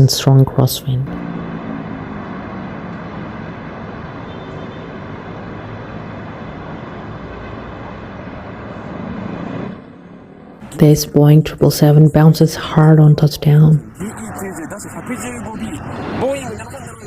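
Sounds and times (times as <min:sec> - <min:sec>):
jet engine noise: 0:13.8 - 0:17.0.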